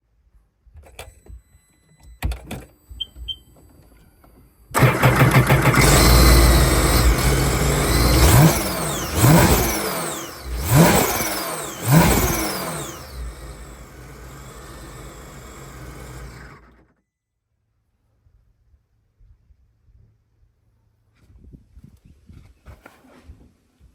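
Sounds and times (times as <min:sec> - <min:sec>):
jet ski engine revving and idling: 0:04.8 - 0:16.8.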